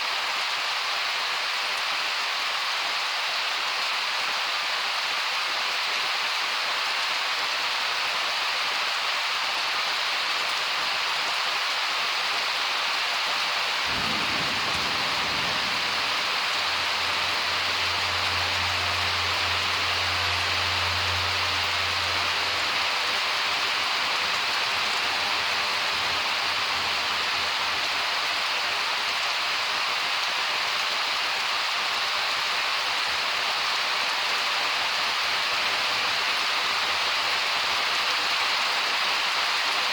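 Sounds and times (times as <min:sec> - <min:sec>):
heavy rain pouring: 0:00.0 - 0:39.9
thunder rumbling: 0:13.8 - 0:19.7.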